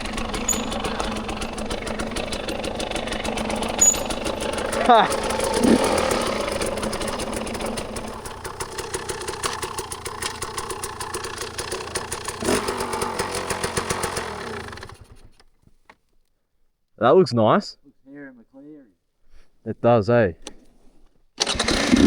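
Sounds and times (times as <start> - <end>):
dirt bike engine running: 0.0 - 15.4.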